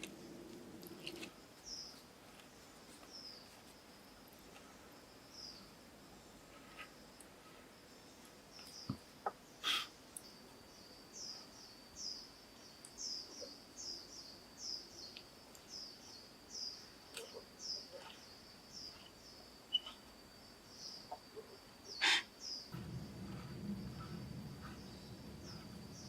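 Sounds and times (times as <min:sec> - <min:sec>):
bird chirping: 0:08.6 - 0:20.1, 0:20.7 - 0:26.0.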